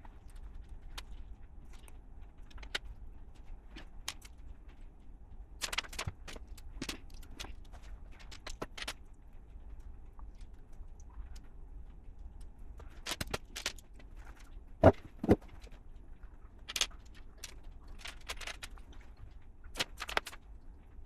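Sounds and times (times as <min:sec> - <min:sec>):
plastic bricks clicking: 0:16.6 - 0:18.8.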